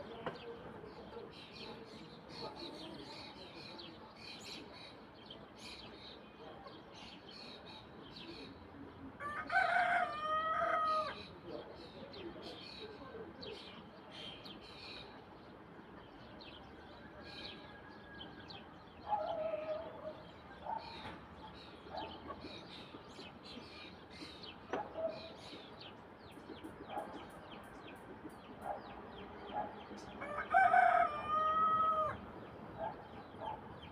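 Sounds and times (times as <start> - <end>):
small birds chirping: 11.0 - 33.9
chickens clucking: 19.1 - 23.6, 26.2 - 31.5.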